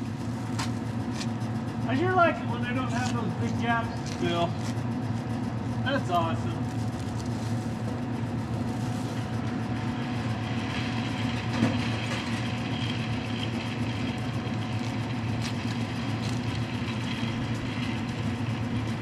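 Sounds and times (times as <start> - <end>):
welding arc hissing and crackling: 0.0 - 1.4, 5.9 - 19.0
engine running: 0.0 - 19.0.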